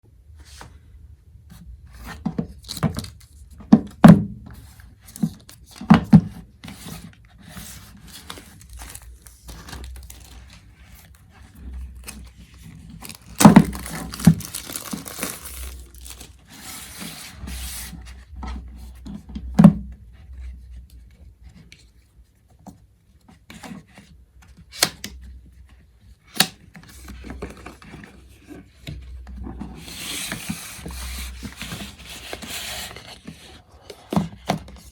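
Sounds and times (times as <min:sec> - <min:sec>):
paper tearing and crinkling: 0:07.9 - 0:10.6, 0:12.0 - 0:17.0.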